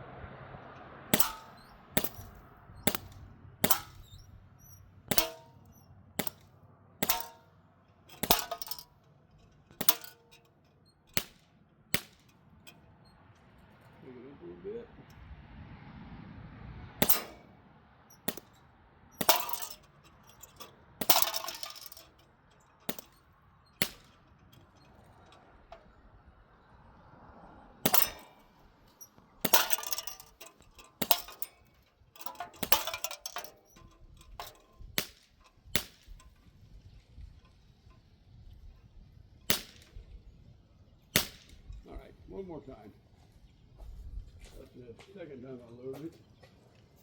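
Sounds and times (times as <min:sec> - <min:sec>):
metallic clinks and rattle: 0:01.1 - 0:13.0, 0:17.0 - 0:17.5, 0:18.1 - 0:26.0, 0:27.8 - 0:38.0
bb gun pops: 0:35.0 - 0:36.2, 0:39.5 - 0:40.0, 0:41.2 - 0:41.6.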